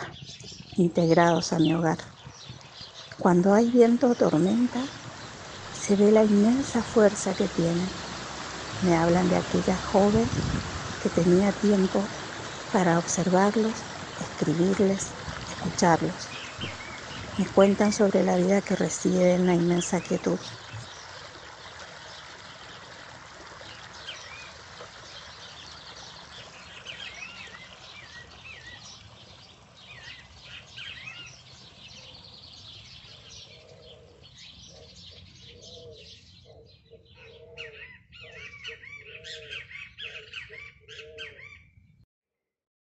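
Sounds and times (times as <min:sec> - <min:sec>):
birds chirping: 0:00.0 - 0:41.7
low repeating bird call: 0:33.2 - 0:41.8.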